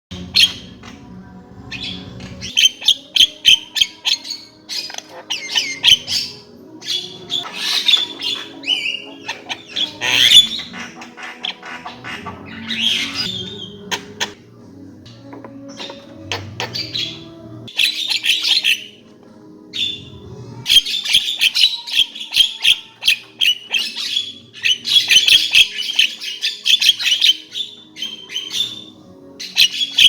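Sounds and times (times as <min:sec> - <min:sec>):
bird singing squawks and whistles: 0:00.2 - 0:01.1, 0:01.7 - 0:14.4, 0:15.6 - 0:19.0, 0:19.7 - 0:30.0.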